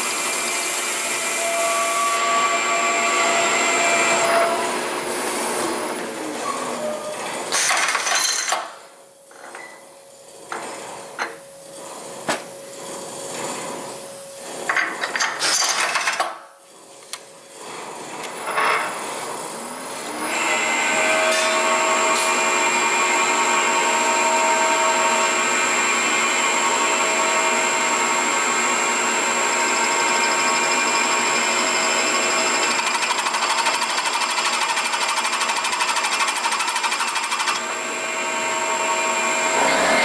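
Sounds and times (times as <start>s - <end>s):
milling machine humming: 0.0s - 7.5s, 19.0s - 40.0s.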